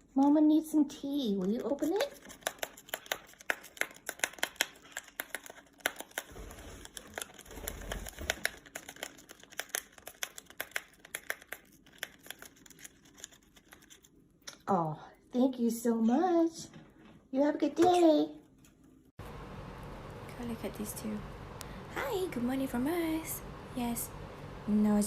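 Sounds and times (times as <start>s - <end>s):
parrot tearing a paper packet: 1.4s - 14.2s.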